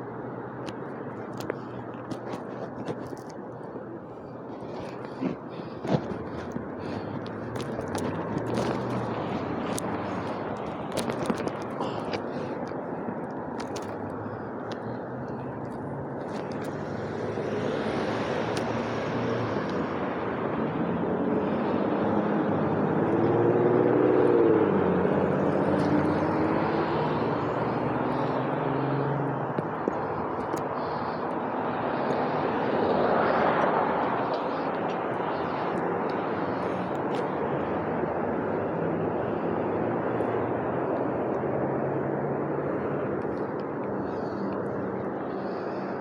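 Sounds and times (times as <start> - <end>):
traffic rumble: 0.0 - 46.0
vehicle passing: 0.0 - 46.0.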